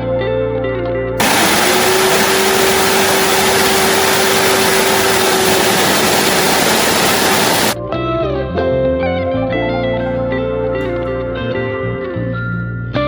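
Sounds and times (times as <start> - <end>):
vacuum cleaner running: 1.2 - 7.8.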